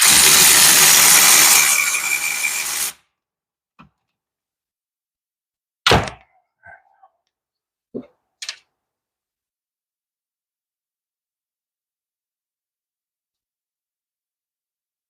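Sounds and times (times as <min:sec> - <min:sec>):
impact wrench running: 0:00.0 - 0:03.0.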